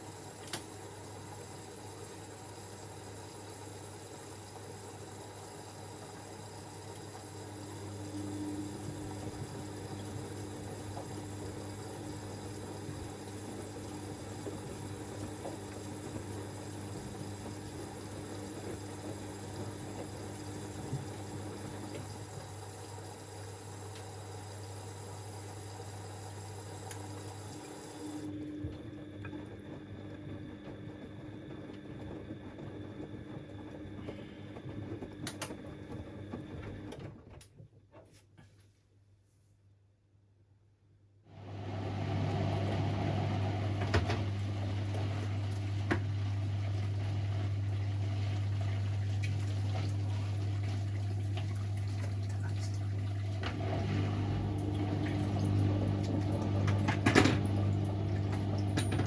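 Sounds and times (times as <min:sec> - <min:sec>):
washing machine hum: 0:00.0 - 0:39.2, 0:41.1 - 0:59.0
water sloshing in machine: 0:43.7 - 0:59.0.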